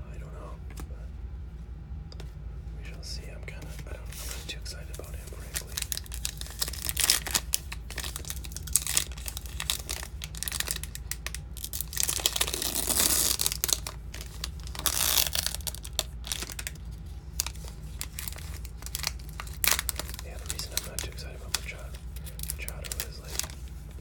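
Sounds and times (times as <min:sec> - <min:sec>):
cards clicking and scraping: 0:03.5 - 0:24.0
packaging crinkling and tearing: 0:05.0 - 0:24.0.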